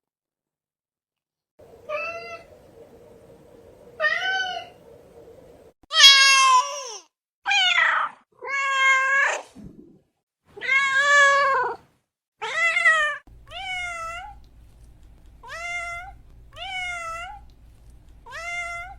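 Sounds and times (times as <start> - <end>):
cat meowing: 1.9 - 2.6, 15.4 - 17.4, 18.3 - 18.9.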